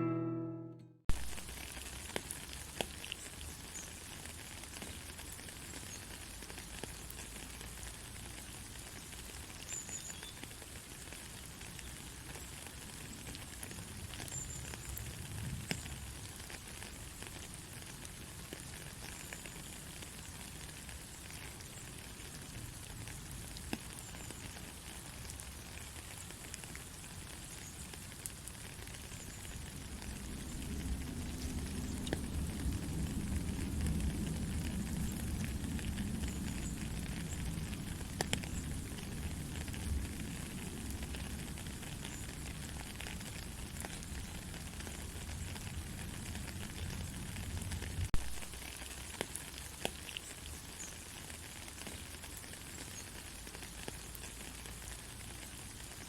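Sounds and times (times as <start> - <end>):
acoustic guitar note: 0.0 - 1.1
gentle rain patter: 1.1 - 56.0.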